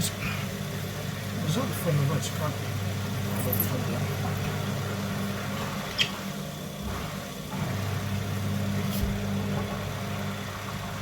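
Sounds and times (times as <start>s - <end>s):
washing machine drum humming: 0.0s - 11.0s.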